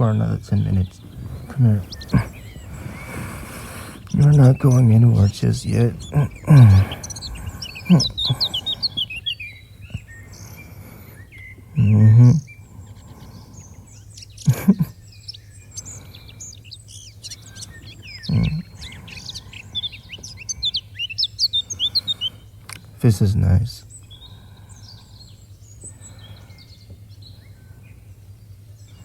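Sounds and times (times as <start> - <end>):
man humming low: 0.0 - 9.1, 11.8 - 12.5, 14.5 - 14.9, 18.3 - 19.1
birds chirping: 0.0 - 29.0.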